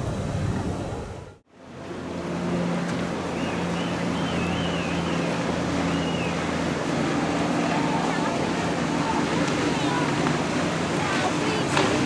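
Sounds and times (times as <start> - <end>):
powerboat engines humming: 0.0 - 12.0
water and wind noise: 0.0 - 12.0.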